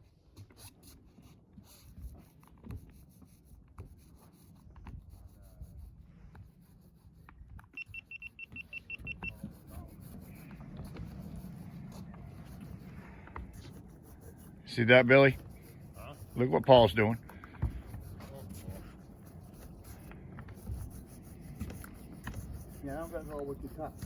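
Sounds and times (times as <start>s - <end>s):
high electronic beeps: 7.8s - 9.4s
low steady hum: 7.8s - 24.0s
light taps and knocks: 17.2s - 18.9s.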